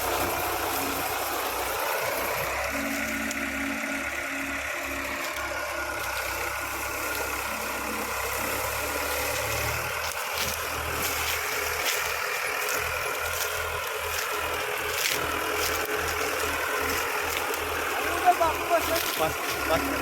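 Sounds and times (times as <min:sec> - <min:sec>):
harvester engine running: 0:00.0 - 0:20.0.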